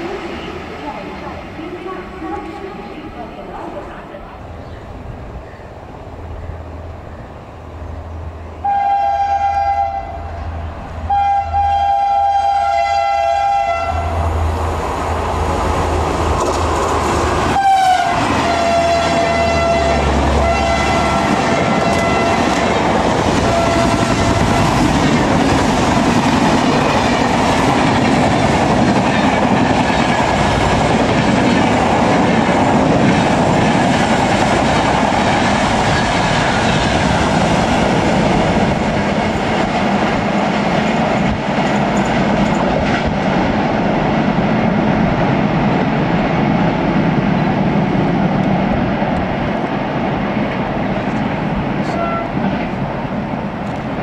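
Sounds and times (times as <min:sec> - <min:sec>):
train coaches rushing past: 0:00.0 - 0:54.0
locomotive air horn blasts: 0:08.6 - 0:10.4, 0:11.1 - 0:14.1, 0:17.6 - 0:22.6, 0:23.4 - 0:24.8, 0:51.8 - 0:52.4
train wheel clatter: 0:20.4 - 0:44.0.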